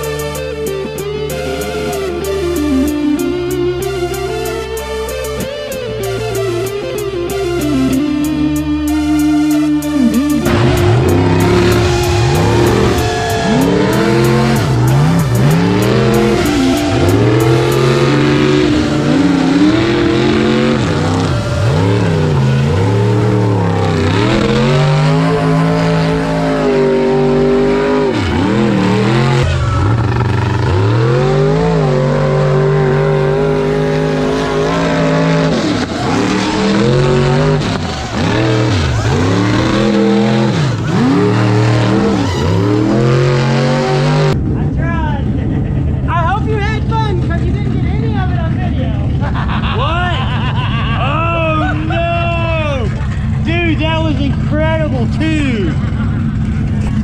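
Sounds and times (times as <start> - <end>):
motor revving: 9.3 - 44.4.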